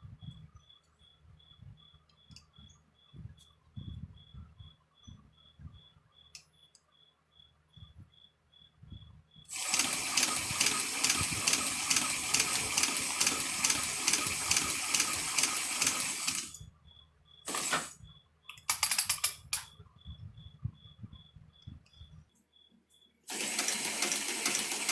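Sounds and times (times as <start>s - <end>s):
sewing machine clattering: 9.5s - 16.6s, 23.3s - 24.9s
quick run of clicks: 18.6s - 19.7s.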